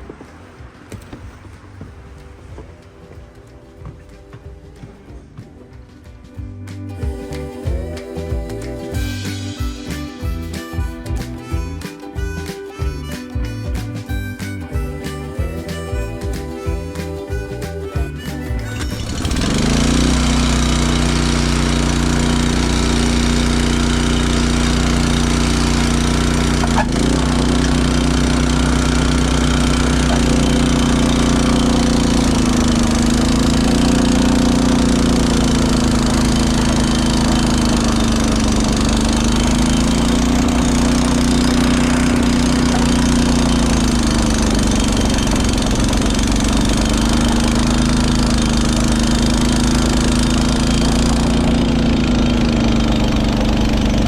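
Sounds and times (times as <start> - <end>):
snowblower engine running: 12.2 - 54.0.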